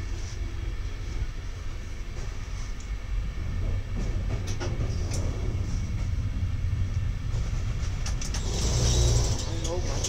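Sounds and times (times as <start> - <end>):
train rumbling: 0.0 - 10.0
train wheel clicks: 3.6 - 5.6, 7.4 - 10.0.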